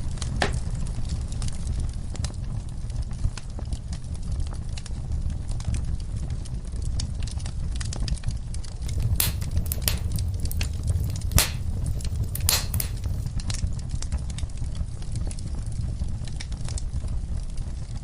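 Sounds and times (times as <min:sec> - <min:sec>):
fireplace fire crackling: 0:08.6 - 0:13.3
loud fire pops: 0:08.9 - 0:13.3.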